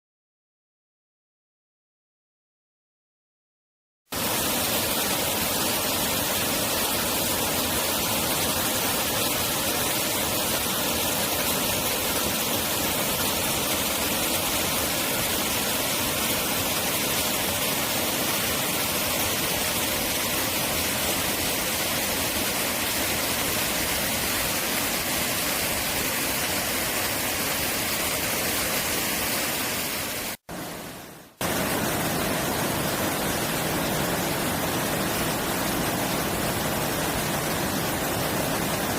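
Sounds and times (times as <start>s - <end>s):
mountain stream rushing: 4.2s - 38.9s.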